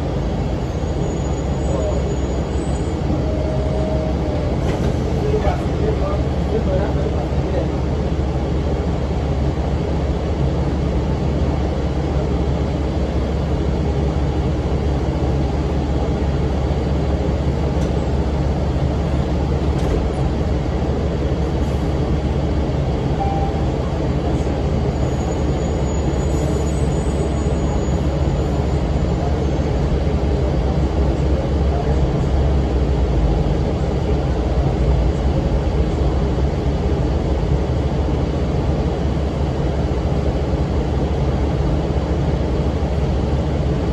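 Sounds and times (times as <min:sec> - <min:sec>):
diesel bus engine running: 0:00.0 - 0:43.9.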